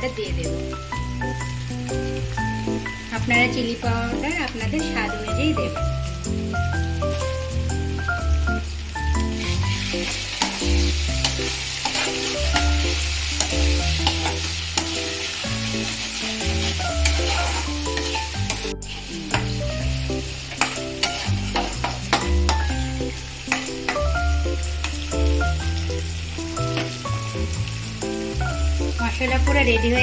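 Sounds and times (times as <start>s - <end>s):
background music with bass: 0.0s - 30.0s
paste sizzling in oil: 0.0s - 30.0s
spoon scraping a pan: 9.3s - 19.6s, 20.4s - 22.7s, 23.4s - 24.0s.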